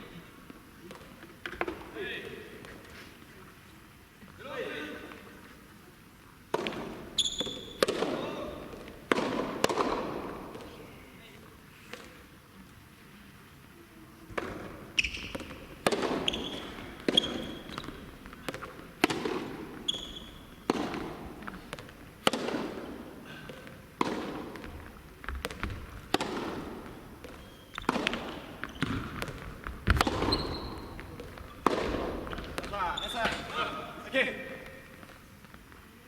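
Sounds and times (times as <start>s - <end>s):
tennis ball hit by racket: 6.5s - 10.6s, 14.3s - 23.2s, 24.0s - 32.8s
ball bouncing on court: 6.5s - 10.7s, 14.3s - 23.0s, 23.6s - 33.6s
shoes squeaking on court: 6.6s - 10.0s, 14.4s - 35.9s.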